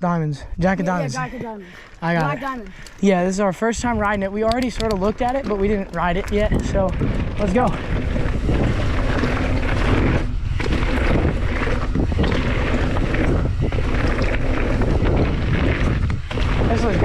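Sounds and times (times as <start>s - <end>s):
wind buffeting microphone: 0.4s - 17.0s
bike tyres on dirt trail: 0.6s - 17.0s.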